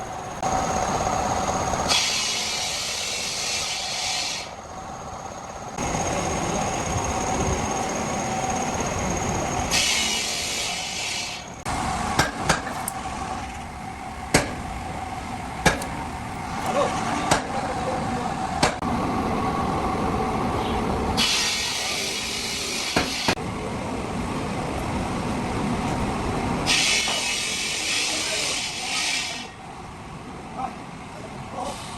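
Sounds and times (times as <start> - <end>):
loud hiss: 0.0 - 4.9, 5.7 - 11.7, 21.2 - 23.4, 26.7 - 29.6
steady mechanical hum: 0.0 - 31.9.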